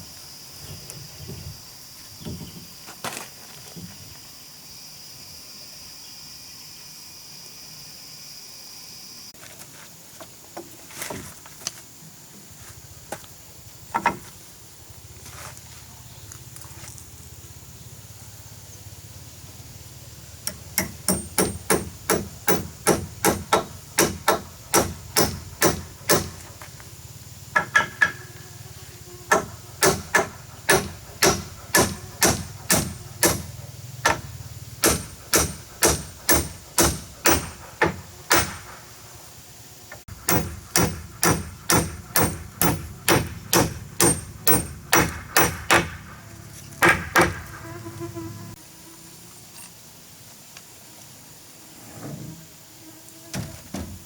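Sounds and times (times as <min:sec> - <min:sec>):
hammer driving nails into wood: 0:20.5 - 0:26.4, 0:29.3 - 0:38.8, 0:40.1 - 0:46.2, 0:46.8 - 0:47.6.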